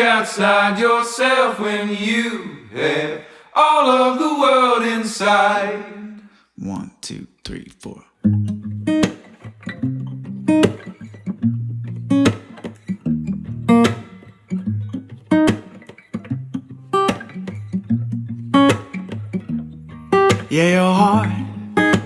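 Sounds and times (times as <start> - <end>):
strummed acoustic guitar: 8.2 - 22.0
person singing: 20.5 - 22.0.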